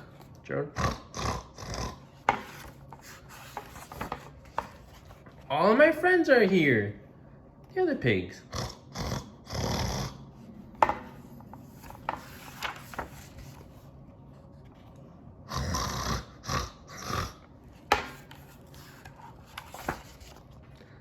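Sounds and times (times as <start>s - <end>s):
paper rustling: 2.3s - 5.5s, 11.6s - 15.1s, 17.8s - 21.0s.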